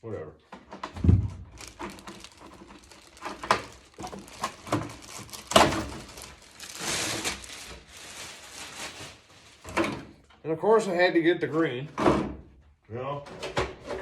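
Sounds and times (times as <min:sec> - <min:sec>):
packaging rustling and scraping: 0:01.3 - 0:10.2.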